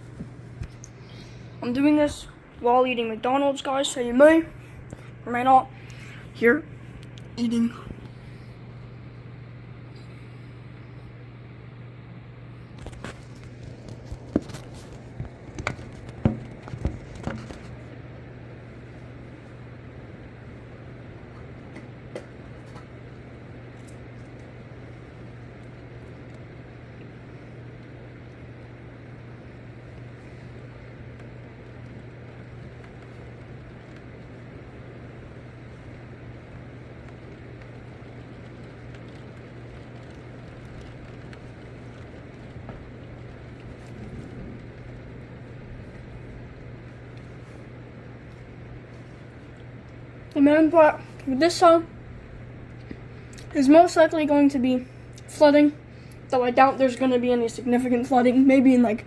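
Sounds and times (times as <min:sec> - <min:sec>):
low even hum: 0:00.0 - 0:59.0
steady hiss: 0:00.0 - 0:59.0.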